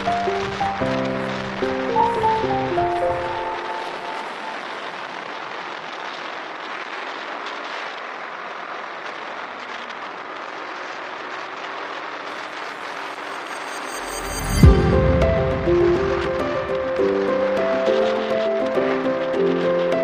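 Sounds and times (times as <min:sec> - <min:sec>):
music with loud hit: 0:13.5 - 0:18.1
wind and road rushing: 0:14.0 - 0:18.2.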